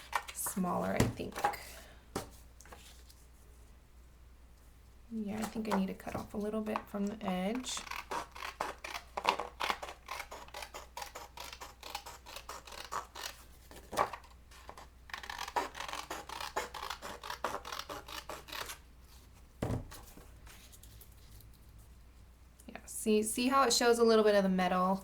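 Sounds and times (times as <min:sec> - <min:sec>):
scissors cutting paper: 0:07.7 - 0:18.8.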